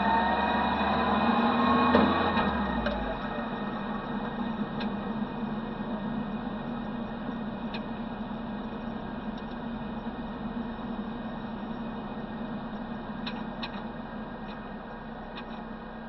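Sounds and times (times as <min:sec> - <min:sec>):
car engine running at low revs: 0:00.0 - 0:16.0
wind and road noise: 0:00.0 - 0:16.0
faint ticks: 0:08.6 - 0:10.1.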